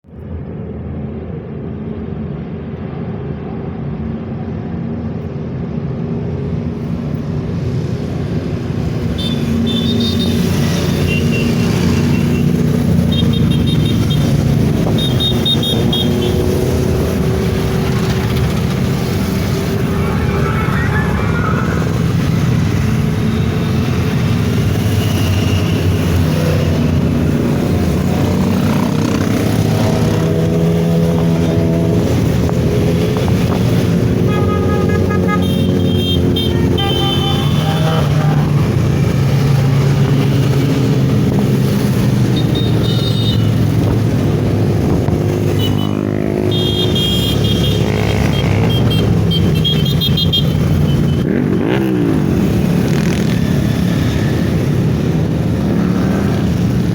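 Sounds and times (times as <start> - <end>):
motorcycle engines running: 7.6 - 56.9
vehicle horns tooting: 14.9 - 16.5, 34.2 - 38.6, 42.4 - 43.6, 45.6 - 51.3.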